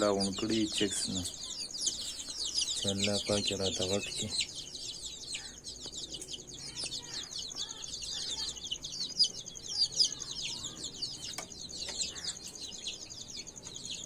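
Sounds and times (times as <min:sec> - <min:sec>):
hens clucking: 0:00.0 - 0:06.2
chicks peeping: 0:00.0 - 0:14.0.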